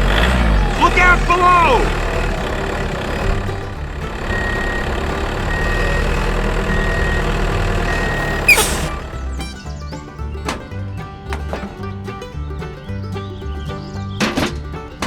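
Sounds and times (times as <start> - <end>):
vehicle engine running: 0.0 - 15.0
reversing alarm beeping: 4.2 - 8.9.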